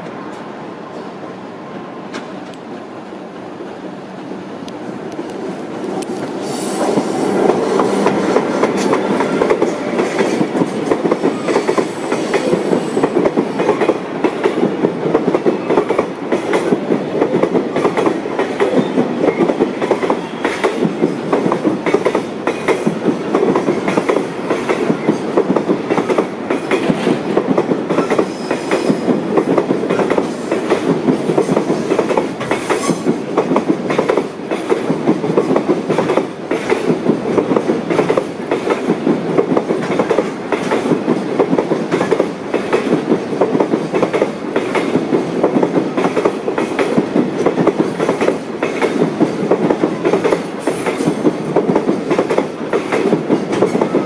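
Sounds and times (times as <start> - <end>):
train wheels clattering over joints: 5.8 - 54.0.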